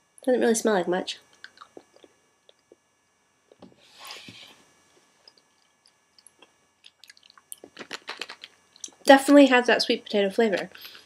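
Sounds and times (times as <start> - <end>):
wet mouth clicks from chewing: 1.4 - 2.8, 5.3 - 9.0.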